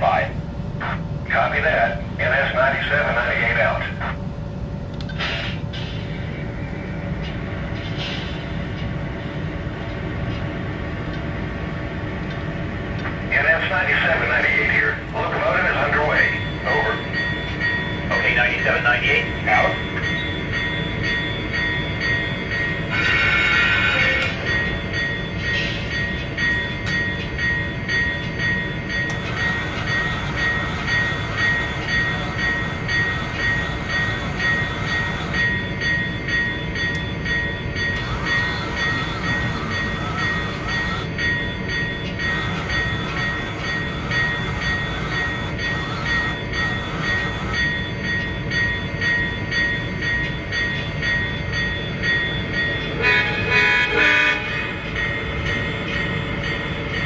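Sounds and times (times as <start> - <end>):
model train engine rumble: 0.0 - 9.8, 26.4 - 49.1
train horn: 29.1 - 35.4, 38.0 - 41.1, 42.2 - 47.6, 53.0 - 54.8.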